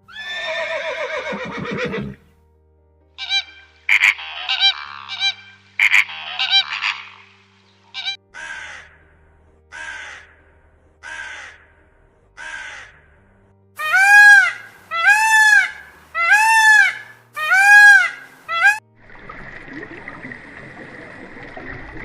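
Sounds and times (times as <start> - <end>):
bird calling loudly: 3.2 - 7.3, 7.9 - 8.8, 13.8 - 18.8.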